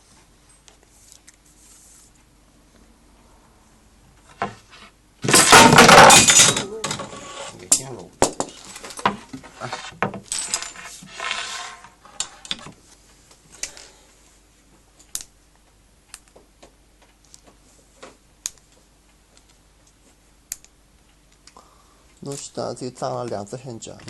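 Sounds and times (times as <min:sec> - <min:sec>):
metal hardware clinking and rattling: 0:05.2 - 0:07.1, 0:10.2 - 0:10.9.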